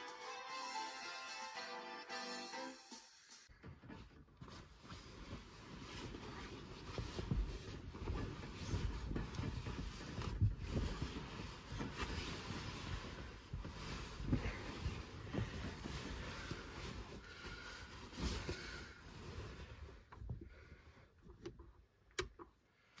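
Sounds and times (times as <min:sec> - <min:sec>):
sleeping bag rustling: 0:03.6 - 0:20.8
soft bumps: 0:03.6 - 0:21.5.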